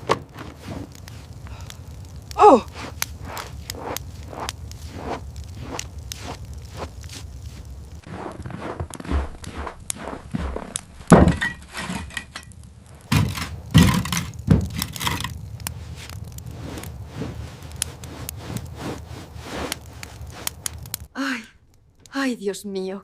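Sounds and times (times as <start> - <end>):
knocks and thuds: 0.0 - 0.5, 10.4 - 11.6, 13.1 - 14.9.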